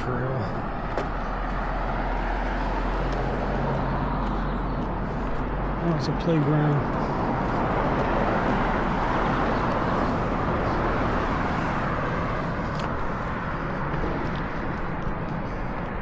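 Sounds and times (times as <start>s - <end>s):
distant road traffic roar: 0.0s - 16.0s.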